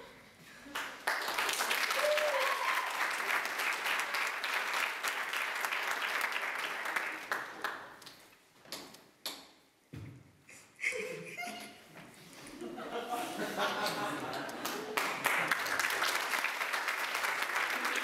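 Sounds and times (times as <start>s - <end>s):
audience clapping: 0.7s - 9.0s, 13.8s - 18.0s.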